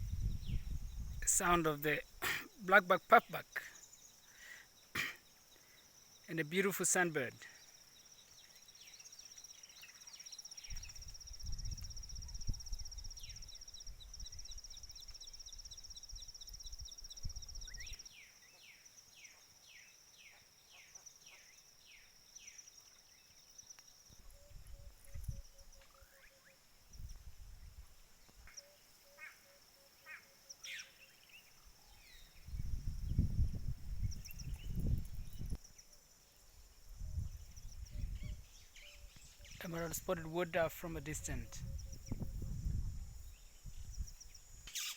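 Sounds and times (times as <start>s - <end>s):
birds calling: 28.4s - 32.6s, 44.7s - 44.9s.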